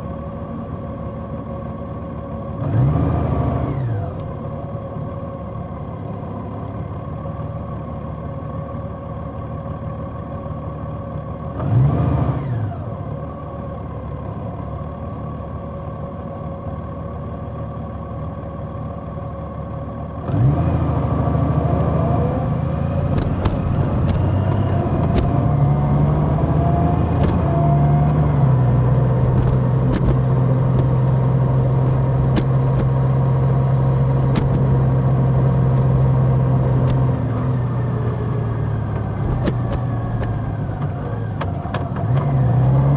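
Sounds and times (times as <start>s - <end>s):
motorcycle engine accelerating: 20.3s - 42.9s.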